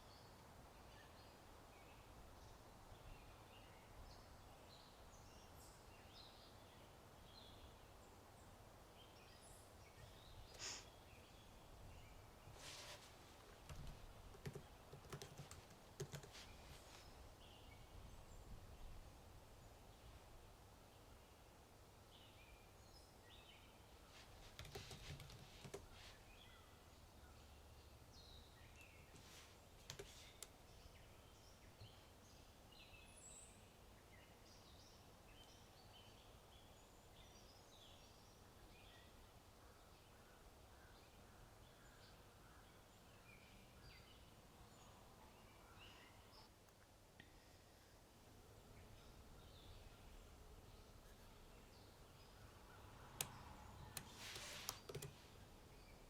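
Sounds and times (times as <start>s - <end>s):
faint birdsong chirps: 0.0s - 56.0s
keyboard typing: 13.5s - 16.4s, 24.4s - 25.9s, 29.8s - 30.5s, 53.2s - 55.2s.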